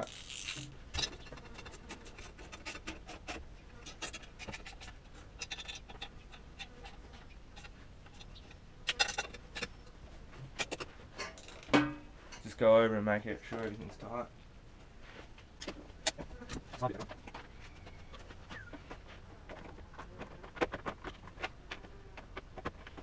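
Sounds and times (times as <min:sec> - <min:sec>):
ratchet wrench clicking: 0:00.0 - 0:00.7.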